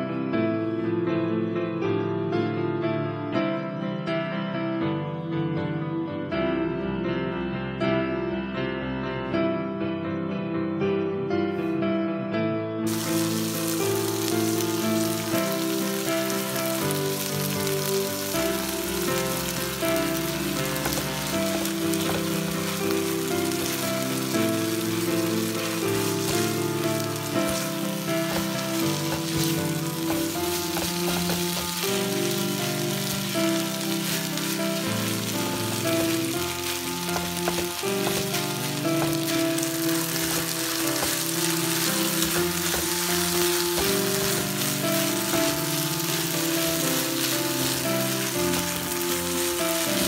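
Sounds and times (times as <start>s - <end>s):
background music: 0.0s - 50.0s
rice frying in a pan: 12.9s - 50.0s
spatula stirring: 19.5s - 50.0s.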